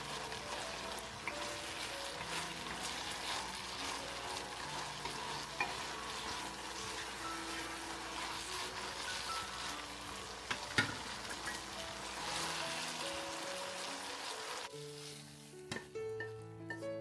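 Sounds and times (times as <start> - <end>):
food sizzling in a frying pan: 0.0 - 16.0
utensil clinking against pan: 0.6 - 11.6.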